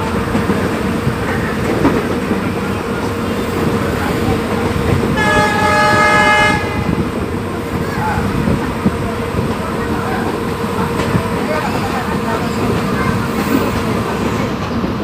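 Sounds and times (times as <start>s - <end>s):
train wheels clattering on track: 0.0s - 15.0s
train horn blast: 5.1s - 7.0s.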